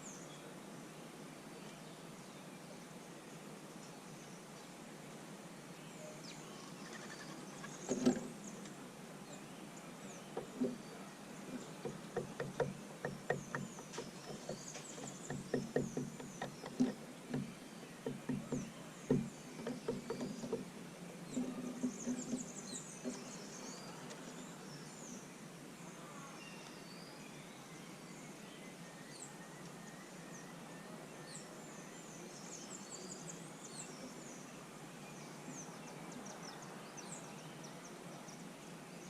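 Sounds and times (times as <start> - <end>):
small birds chirping: 5.7 - 39.0
light taps and knocks: 7.9 - 8.7, 10.4 - 10.9, 11.5 - 20.7, 21.3 - 23.3.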